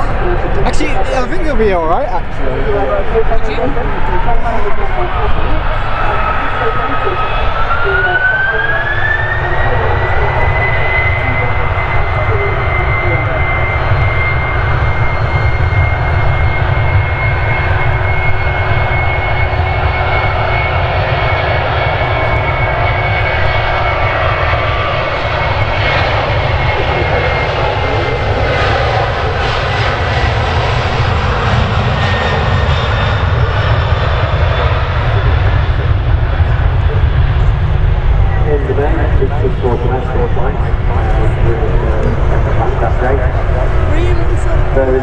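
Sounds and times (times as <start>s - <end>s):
jet engines at takeoff: 0.0s - 45.0s.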